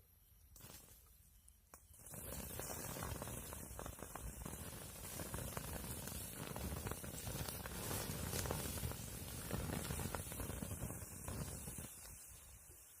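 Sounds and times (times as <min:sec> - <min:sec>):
campfire crackling and popping: 0:00.5 - 0:13.0
low fire rumble: 0:02.0 - 0:13.0.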